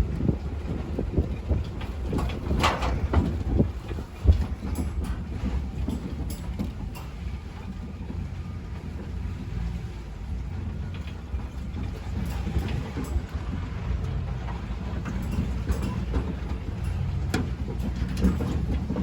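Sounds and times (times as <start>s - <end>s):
tractor engine running: 0.0s - 19.0s
light metal clanks: 1.4s - 19.0s.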